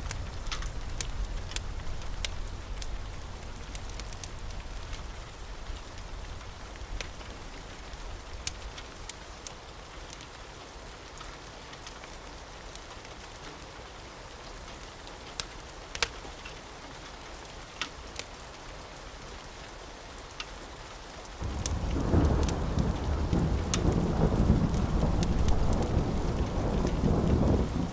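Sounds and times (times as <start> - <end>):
steady rain: 0.0 - 27.9
rumble of thunder: 21.4 - 27.9.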